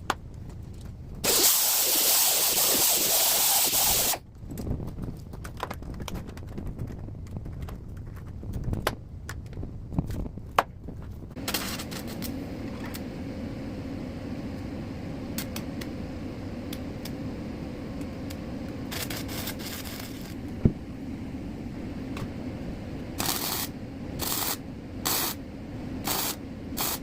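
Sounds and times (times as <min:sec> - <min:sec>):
arc welder crackling hiss: 0:01.2 - 0:04.2, 0:11.4 - 0:20.7, 0:23.0 - 0:27.0.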